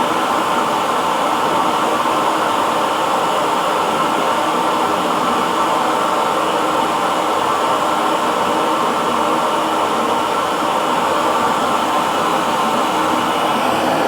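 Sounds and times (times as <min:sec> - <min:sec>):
hair dryer blowing: 0:09.6 - 0:14.0.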